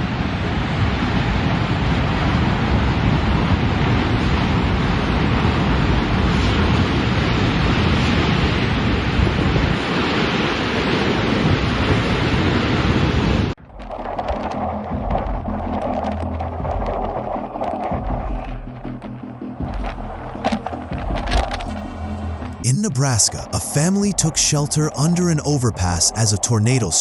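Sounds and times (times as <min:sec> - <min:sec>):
strong wind buffeting microphone: 0:00.0 - 0:22.7.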